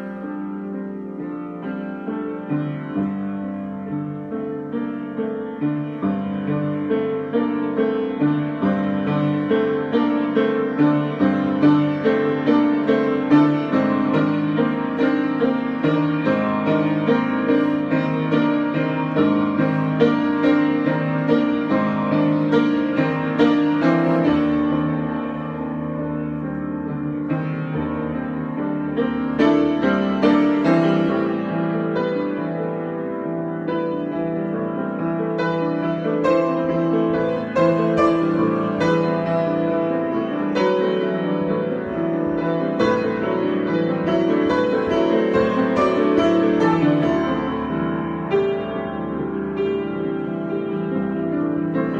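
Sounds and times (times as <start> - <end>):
solo piano: 0.0 - 51.9.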